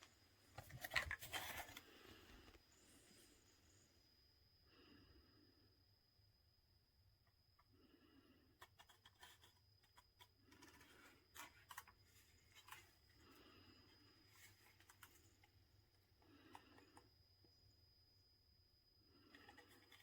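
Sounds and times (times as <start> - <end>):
soft scratching: 14.3 - 15.5.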